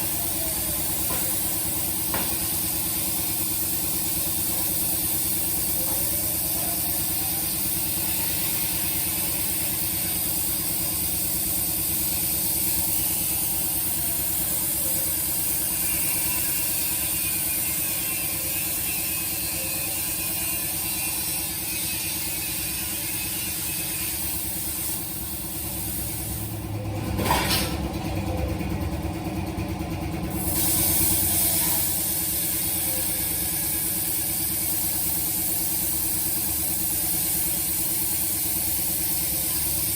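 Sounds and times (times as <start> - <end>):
plasma cutter hiss: 0.0 - 26.6, 30.3 - 39.9.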